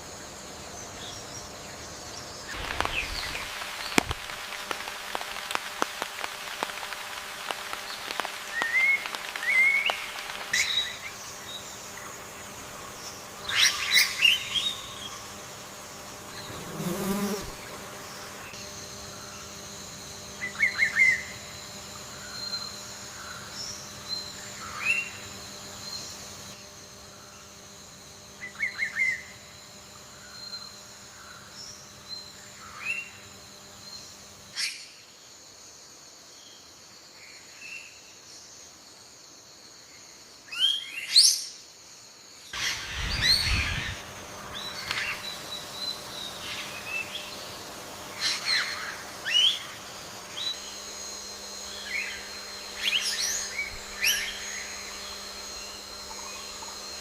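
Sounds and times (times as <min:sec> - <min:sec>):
insect drone: 0:00.0 - 0:57.0
birds chirping and trilling: 0:42.5 - 0:50.8, 0:51.6 - 0:57.0.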